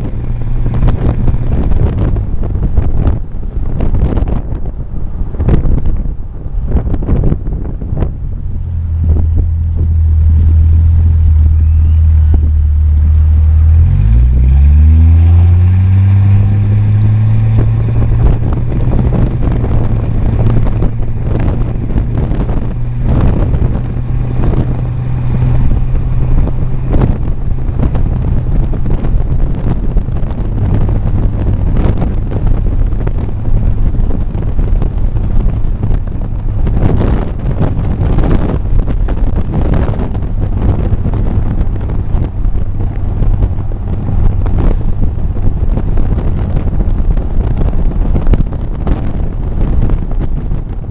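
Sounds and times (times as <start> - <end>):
car engine droning: 0.0 - 50.9
wind buffeting microphone: 0.0 - 50.9.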